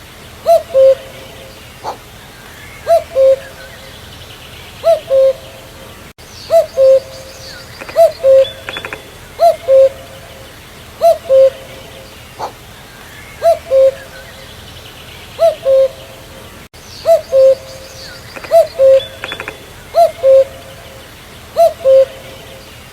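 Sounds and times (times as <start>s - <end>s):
cuckoo calling: 0.4s - 4.1s, 4.7s - 22.9s
faint bird chirps: 4.8s - 22.9s.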